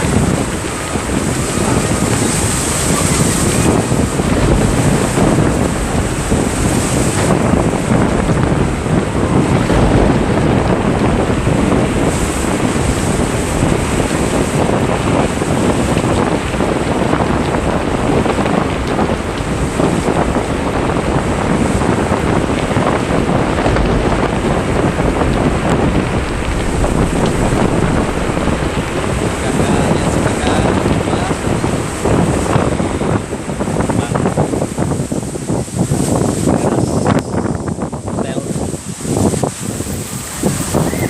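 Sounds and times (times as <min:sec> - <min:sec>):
gusting wind on microphone: 0:00.0 - 0:41.0
sea: 0:00.0 - 0:41.0.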